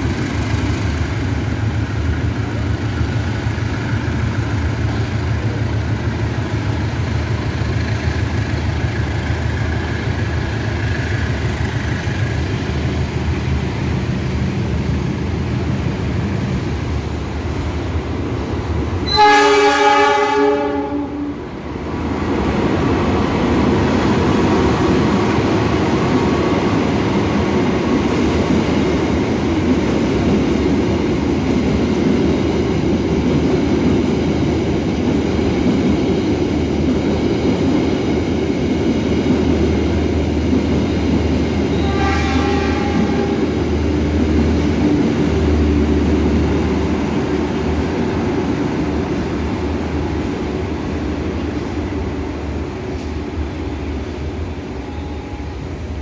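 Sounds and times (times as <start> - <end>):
diesel locomotive engine running: 0.0 - 56.0
train rumbling past: 0.0 - 56.0
train horn: 19.0 - 21.4, 41.7 - 43.6.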